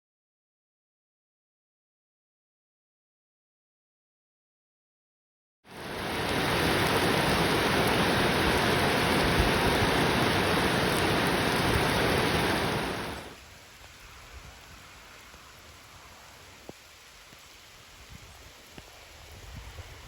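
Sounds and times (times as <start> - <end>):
heavy rain falling: 5.7 - 20.0.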